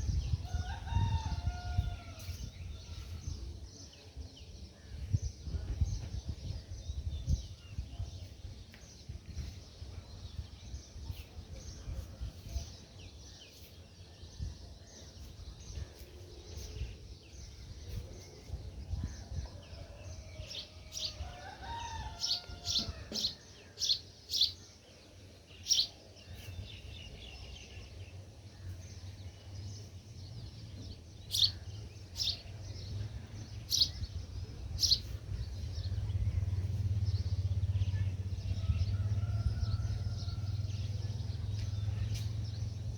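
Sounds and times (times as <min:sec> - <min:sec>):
small birds chirping: 0:20.3 - 0:42.9
steady low rumble: 0:28.5 - 0:42.9.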